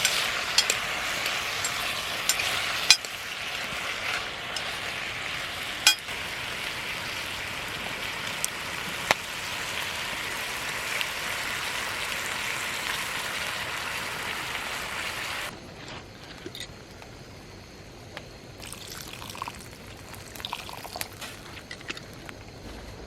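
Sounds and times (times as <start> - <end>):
food sizzling in a pot: 0.0 - 15.5.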